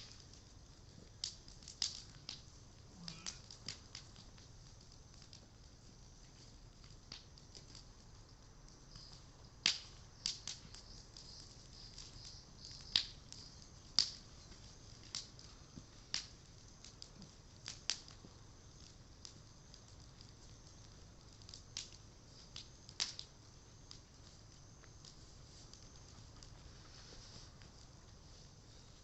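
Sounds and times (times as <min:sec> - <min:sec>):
bonfire crackling and popping: 0:00.0 - 0:29.0
steady high hiss: 0:00.0 - 0:29.0.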